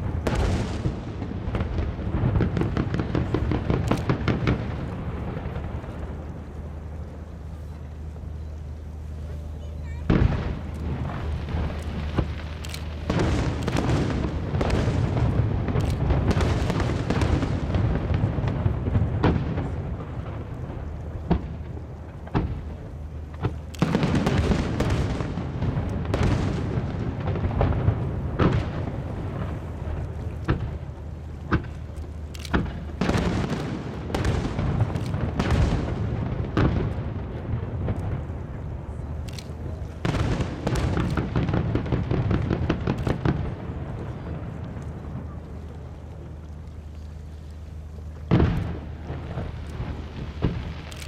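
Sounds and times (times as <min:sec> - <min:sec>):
firework bangs: 0:00.0 - 0:07.0, 0:09.8 - 0:45.8, 0:48.2 - 0:51.0
crackling rumble: 0:00.0 - 0:51.0.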